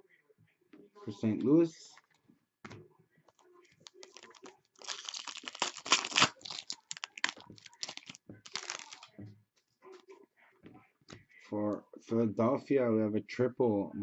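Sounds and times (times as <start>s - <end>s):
wrapper tearing and crinkling: 3.8s - 9.1s.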